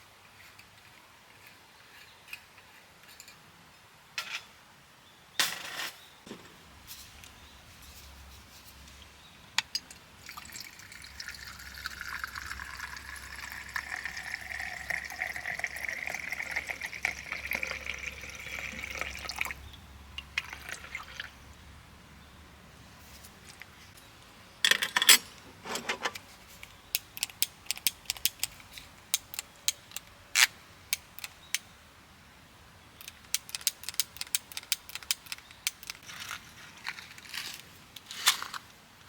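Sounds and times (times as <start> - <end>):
liquid pouring into cup: 10.2 - 19.6.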